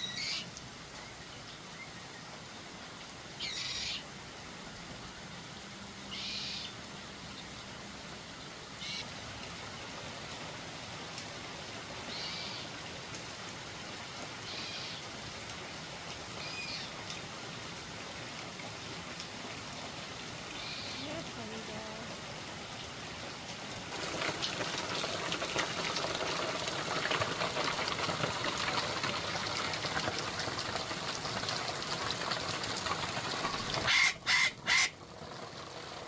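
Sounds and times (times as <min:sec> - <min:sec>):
bird calling: 0:00.0 - 0:00.5, 0:03.4 - 0:04.0, 0:06.1 - 0:06.8, 0:12.1 - 0:12.7, 0:20.5 - 0:21.2, 0:33.8 - 0:35.0.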